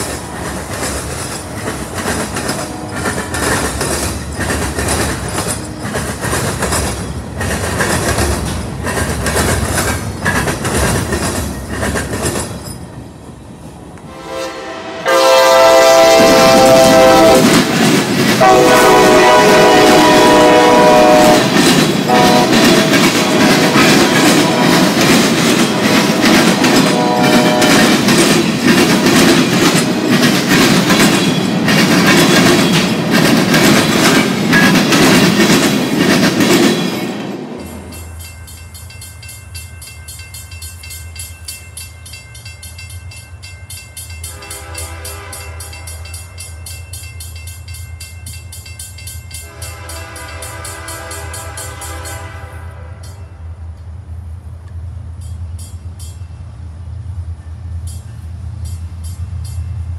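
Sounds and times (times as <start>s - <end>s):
train wheels clicking over rail joints: 0.0s - 13.4s, 16.1s - 53.9s
train horn blasts: 2.4s - 3.6s, 14.0s - 17.7s, 18.4s - 25.1s, 26.6s - 28.1s, 44.2s - 46.2s, 49.4s - 53.4s.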